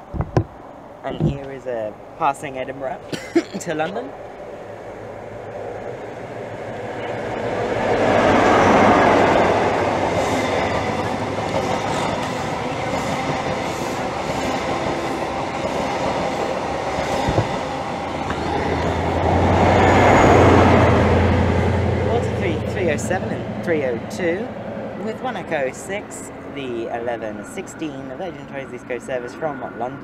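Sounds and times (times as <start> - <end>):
train passing at speed: 3.7 - 30.0.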